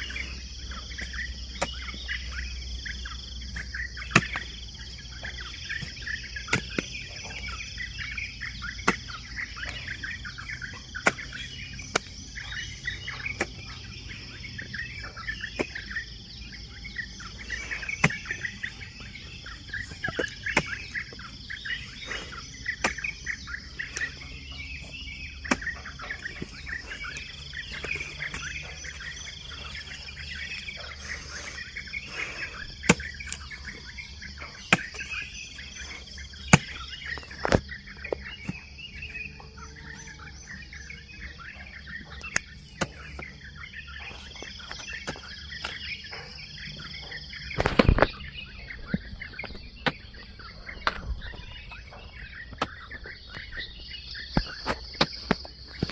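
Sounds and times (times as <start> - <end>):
hoe striking soil: 0.0 - 16.0, 17.1 - 40.9, 42.0 - 43.4
birds chirping: 0.0 - 55.9
insect drone: 0.0 - 55.9.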